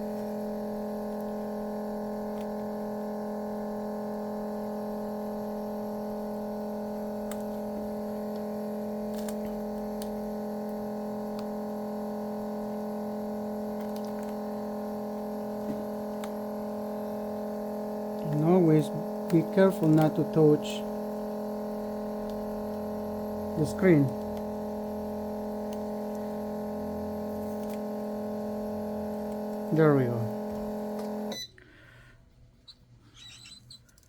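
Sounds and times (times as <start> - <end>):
steady electrical hum: 0.0 - 34.0.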